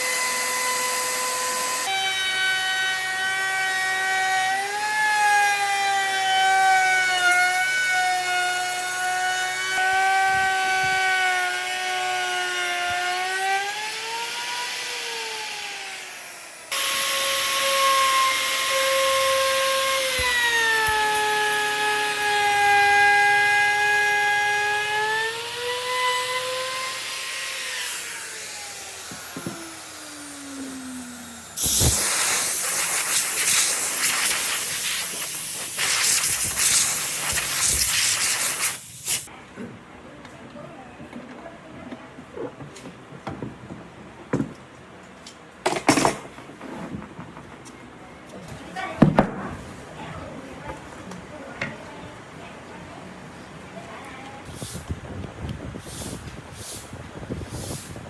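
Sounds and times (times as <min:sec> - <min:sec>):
power tool motor whining on wood: 0:00.0 - 0:39.3.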